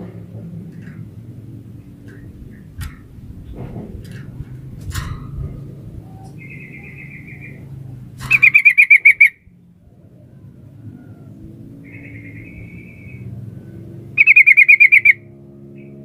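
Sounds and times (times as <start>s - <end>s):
low steady hum: 0.0s - 16.0s
bird bubbling trills: 6.0s - 9.4s, 14.2s - 15.2s.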